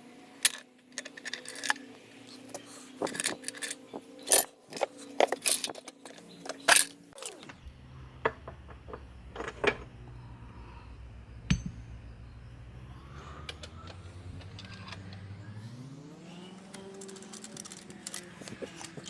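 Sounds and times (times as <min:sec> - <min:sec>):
metal parts clanking: 0:00.4 - 0:07.6, 0:08.2 - 0:10.1, 0:11.5 - 0:15.3, 0:16.6 - 0:19.0
low steady hum: 0:07.3 - 0:15.9
steady tone: 0:07.6 - 0:14.4.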